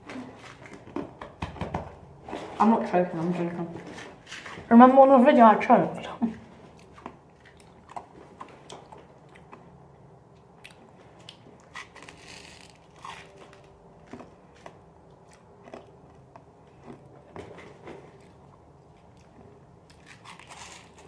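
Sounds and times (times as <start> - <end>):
person chewing crunchy candy: 6.7 - 21.0.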